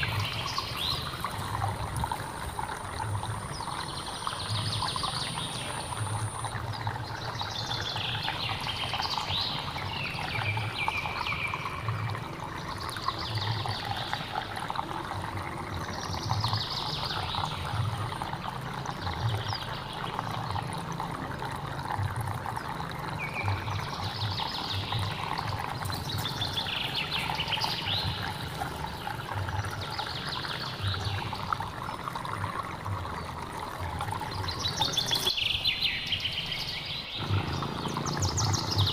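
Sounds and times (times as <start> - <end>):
stream water trickling: 0.0 - 38.9
birds calling: 34.2 - 38.9.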